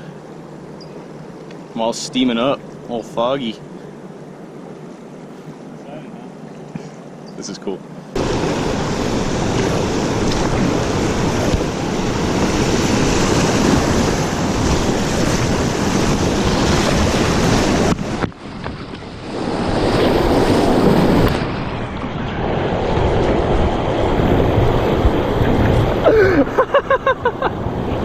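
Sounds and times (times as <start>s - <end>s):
wind noise on microphone: 8.2s - 28.0s.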